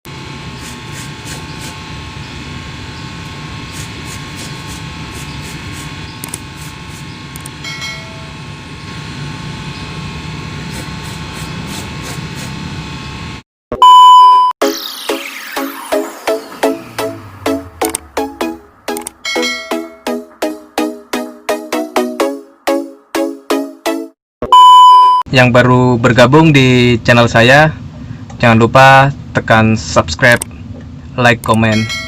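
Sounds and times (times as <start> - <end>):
low mechanical hum: 0.1 - 13.4, 25.4 - 32.0
loud electronic tone: 13.7 - 20.1, 24.4 - 25.2.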